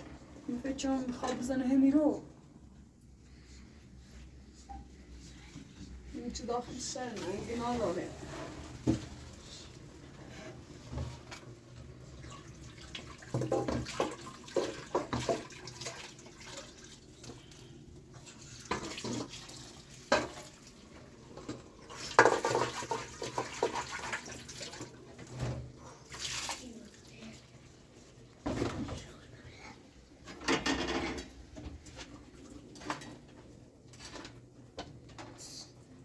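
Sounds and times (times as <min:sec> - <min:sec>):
water splashing in a basin: 0:12.1 - 0:20.8, 0:21.8 - 0:25.3, 0:26.0 - 0:27.3.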